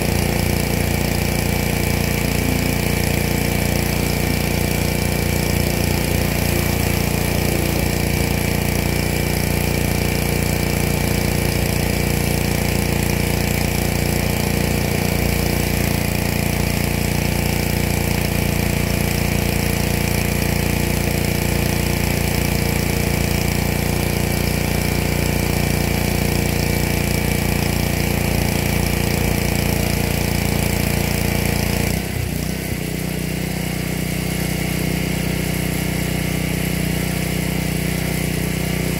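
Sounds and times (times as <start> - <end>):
pressure washer running: 0.0 - 38.9.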